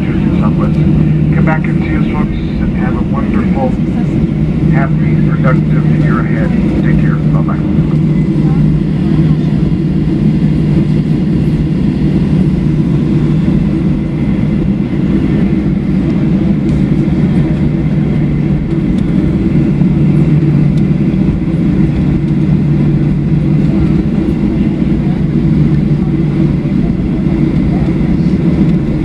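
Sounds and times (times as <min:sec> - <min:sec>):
aircraft engines low rumble: 0:00.0 - 0:29.0.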